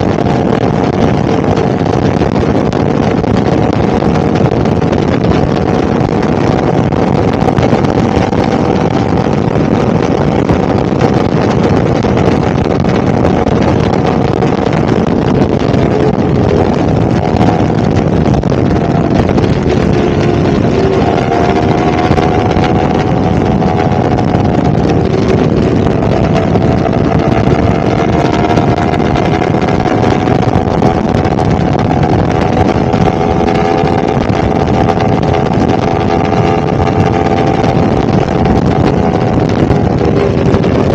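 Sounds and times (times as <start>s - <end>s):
loud rushing noise: 0.0s - 40.9s
motorcycle engine running: 0.0s - 40.9s.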